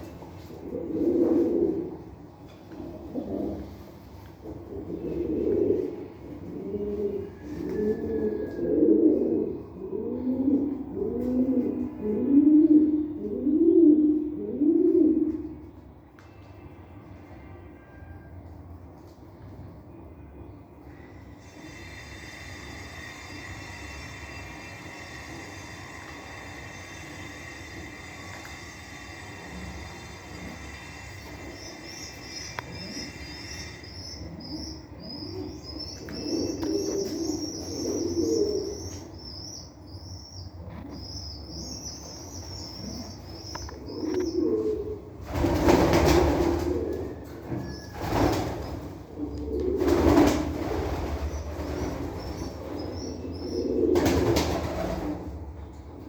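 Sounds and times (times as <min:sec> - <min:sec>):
pigeons cooing: 0:00.0 - 0:15.7, 0:29.1 - 0:55.8
small birds chirping: 0:31.6 - 0:44.5
wings flapping: 0:45.3 - 0:47.0, 0:49.8 - 0:52.2.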